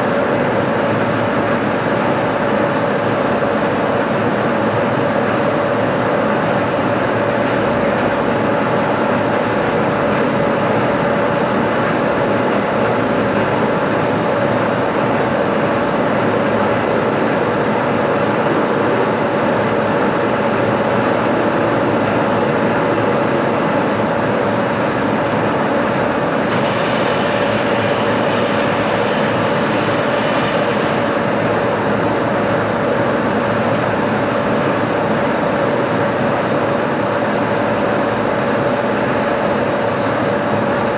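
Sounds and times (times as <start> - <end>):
machine tool humming: 26.5 - 32.4.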